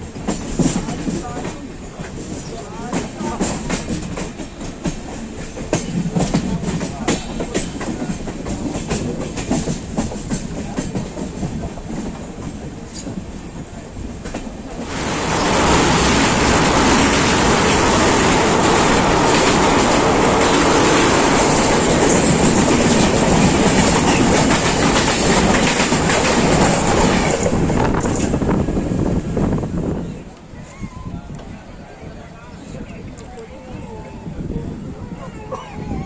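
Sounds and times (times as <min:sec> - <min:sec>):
train wheels clacking on rails: 0:00.0 - 0:28.8.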